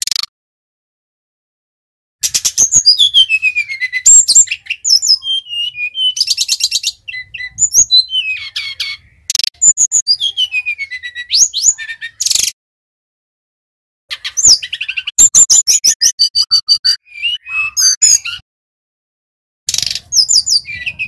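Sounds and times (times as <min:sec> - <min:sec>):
bird singing varied song: 0:02.2 - 0:12.6, 0:14.1 - 0:18.4, 0:19.7 - 0:21.0.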